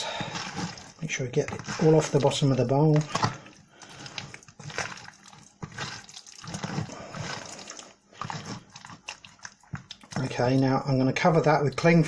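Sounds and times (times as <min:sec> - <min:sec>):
hands squelching raw chicken: 0:00.0 - 0:10.8.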